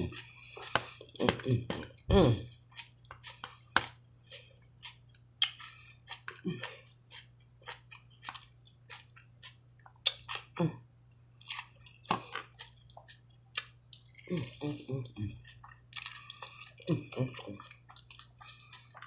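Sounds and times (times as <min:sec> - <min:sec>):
person chewing meat: 0:00.0 - 0:19.0.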